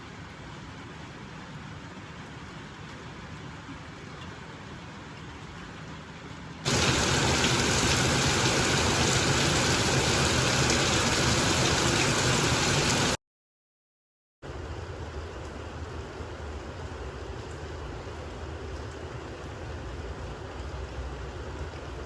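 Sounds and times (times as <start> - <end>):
rain falling: 6.7 - 13.2, 14.5 - 22.0.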